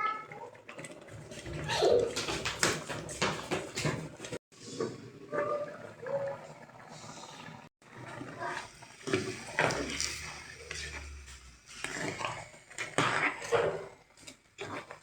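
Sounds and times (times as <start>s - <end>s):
indistinct voices: 8.5s - 12.3s.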